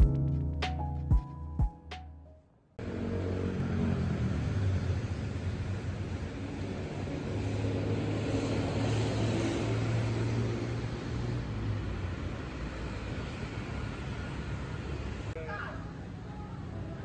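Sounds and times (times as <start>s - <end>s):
vehicle low drone: 2.8s - 15.4s.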